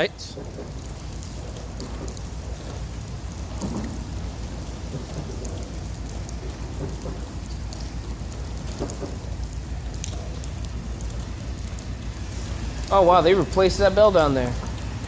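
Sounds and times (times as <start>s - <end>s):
light ticks: 0.3s - 12.2s.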